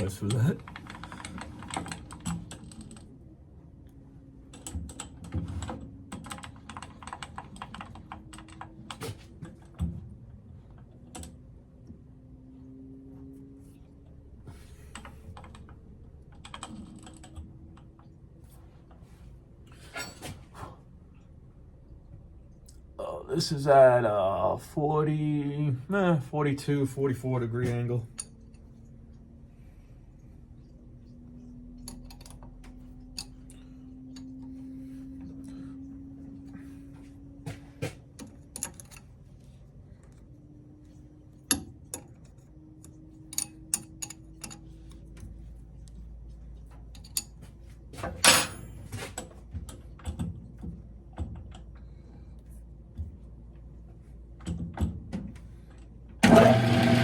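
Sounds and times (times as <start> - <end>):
faint low hum: 0.0 - 57.0
metal tools clinking: 48.2 - 49.0
lathe motor starting: 56.2 - 57.0.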